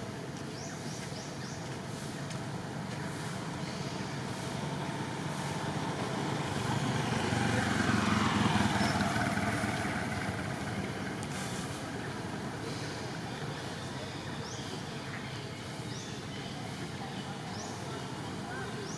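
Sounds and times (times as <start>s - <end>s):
road vehicle passing by: 2.9s - 13.8s.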